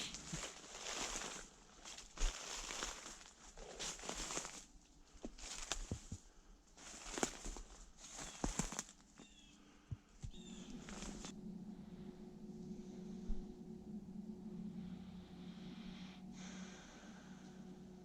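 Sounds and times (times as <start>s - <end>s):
footsteps crunching dry leaves: 0.0s - 6.2s, 6.8s - 9.5s, 10.3s - 11.4s.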